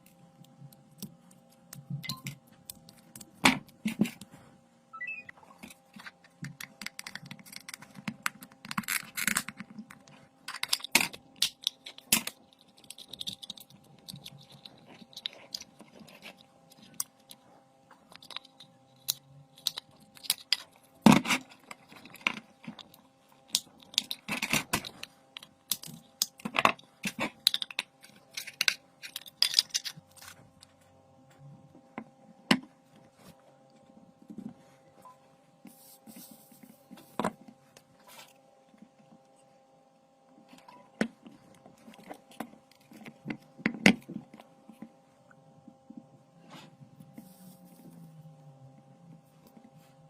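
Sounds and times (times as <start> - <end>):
small objects clicking and tapping: 0.0 - 4.3, 5.6 - 30.7
faint steady hum: 0.0 - 50.0.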